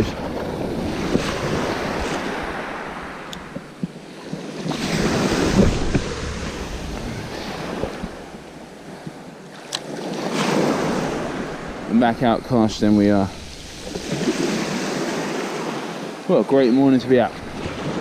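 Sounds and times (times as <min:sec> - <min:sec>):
wind buffeting microphone: 0:00.0 - 0:09.2
sea waves breaking: 0:00.0 - 0:18.0.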